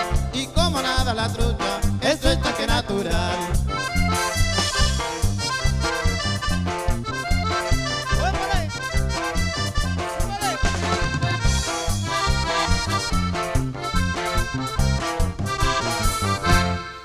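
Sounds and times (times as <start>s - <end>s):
accordion: 0.0s - 17.0s
bass beat: 0.0s - 17.0s
person singing: 0.3s - 3.6s.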